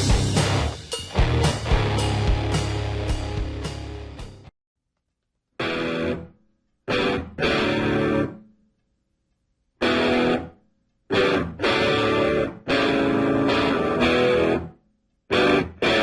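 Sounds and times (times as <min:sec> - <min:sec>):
distorted electric guitar stabs: 0:00.0 - 0:04.4, 0:05.6 - 0:06.3, 0:06.9 - 0:08.4, 0:09.8 - 0:10.5, 0:11.1 - 0:14.7, 0:15.3 - 0:16.0.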